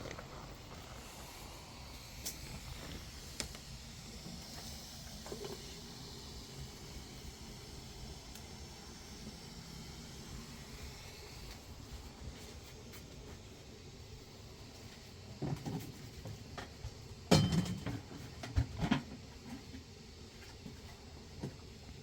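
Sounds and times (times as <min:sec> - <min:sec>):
objects knocking and clattering: 0:17.3 - 0:19.1.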